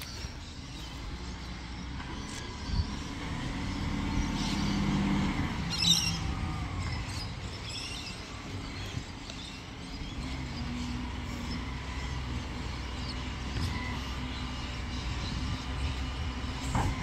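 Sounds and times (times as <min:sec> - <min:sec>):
heavy vehicle engine passing: 0:00.0 - 0:17.0.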